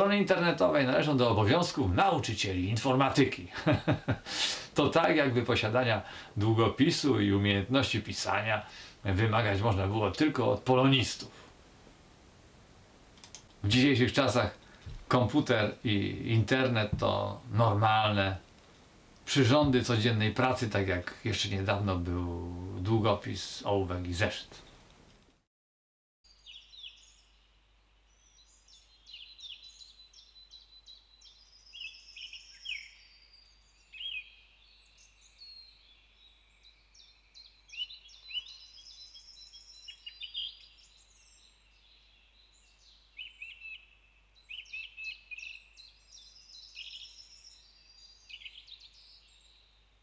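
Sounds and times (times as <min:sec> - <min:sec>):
small birds chirping and singing: 0:00.0 - 0:11.4, 0:13.2 - 0:24.9, 0:26.3 - 0:50.0
faint hiss: 0:00.0 - 0:25.4.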